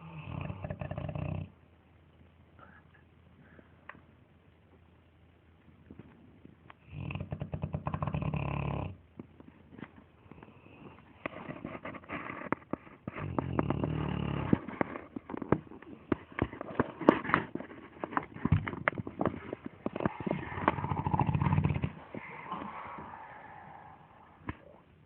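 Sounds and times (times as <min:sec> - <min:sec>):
dog snoring: 0:00.0 - 0:01.6, 0:06.8 - 0:09.0, 0:10.4 - 0:15.1, 0:19.5 - 0:23.8.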